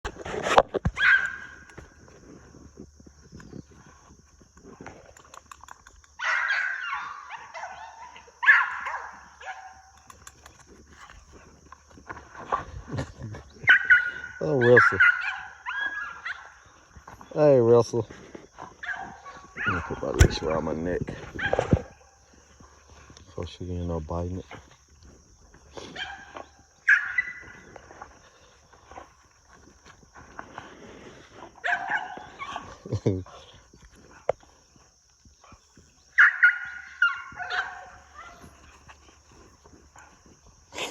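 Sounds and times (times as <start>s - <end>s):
faint footsteps: 15.8s - 40.8s.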